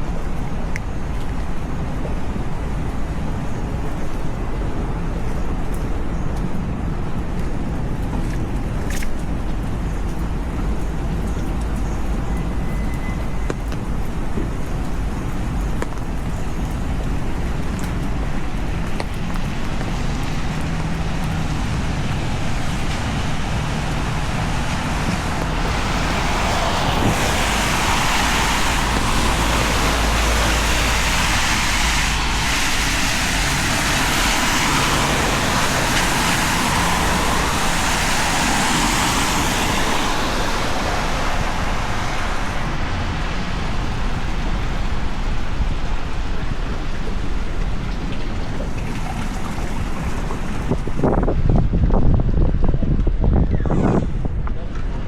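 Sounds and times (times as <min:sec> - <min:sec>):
heavy rain: 0:00.0 - 0:52.5
traffic on wet road: 0:00.0 - 0:55.0.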